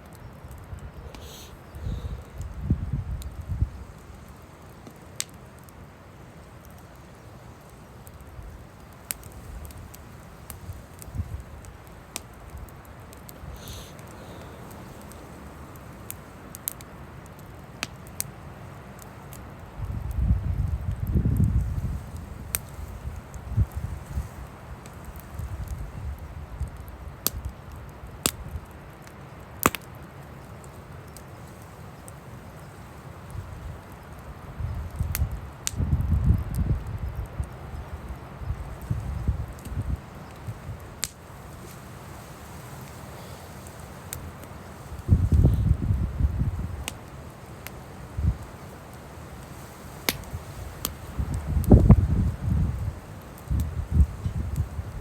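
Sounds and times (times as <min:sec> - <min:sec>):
wood fire crackling and popping: 0:00.0 - 0:55.0
wind rumbling on microphone: 0:00.4 - 0:04.3, 0:08.2 - 0:16.8, 0:19.6 - 0:28.7, 0:33.3 - 0:42.4, 0:44.3 - 0:47.0, 0:48.0 - 0:48.7, 0:50.1 - 0:55.0.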